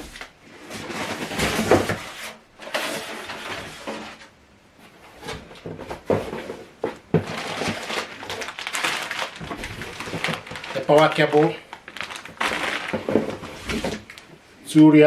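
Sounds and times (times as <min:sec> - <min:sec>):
packaging rustling: 0:05.3 - 0:14.4.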